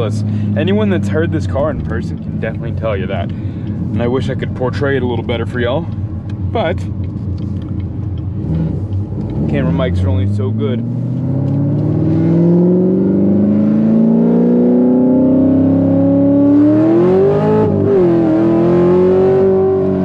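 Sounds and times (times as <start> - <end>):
car engine accelerating hard: 7.4 - 20.0.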